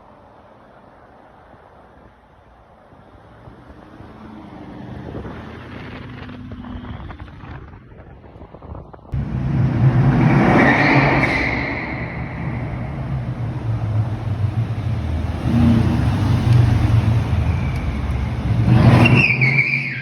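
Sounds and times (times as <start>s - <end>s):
car engine revving: 9.2s - 20.0s.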